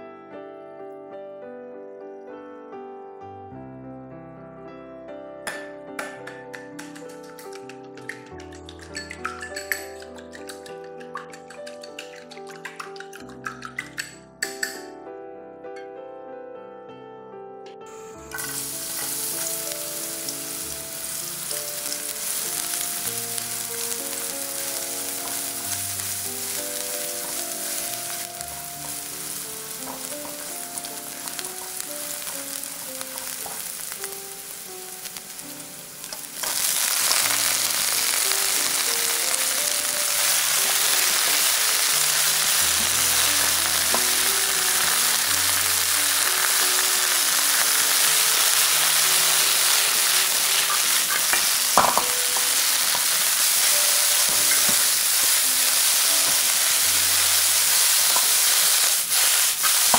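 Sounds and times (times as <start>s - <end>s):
garlic sizzling in hot oil: 5.5s - 14.8s, 17.9s - 59.9s
spatula stirring in pan: 6.8s - 14.7s, 18.4s - 33.9s, 40.1s - 59.9s.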